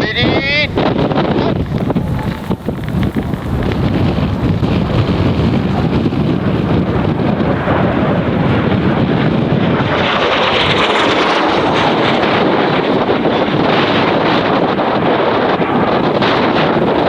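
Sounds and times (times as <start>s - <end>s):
wind buffeting microphone: 0.0s - 17.0s
jet passing overhead: 7.4s - 16.2s.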